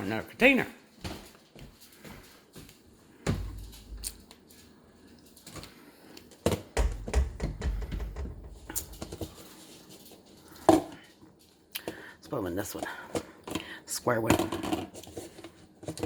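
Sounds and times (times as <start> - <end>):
plastic containers clattering: 5.4 - 11.1, 12.6 - 16.0
dull thuds: 6.8 - 8.8.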